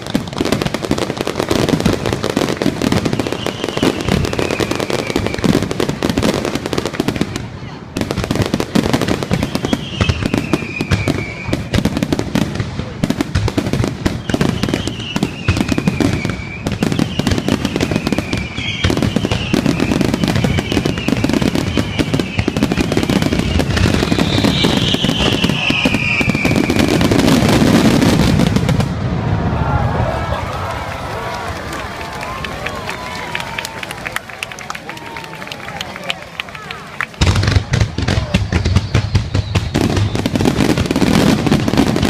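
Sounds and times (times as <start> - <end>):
fireworks bursts and crackling: 0.0 - 42.0
falling whistling tones: 9.3 - 11.7, 14.2 - 27.1, 38.6 - 40.4.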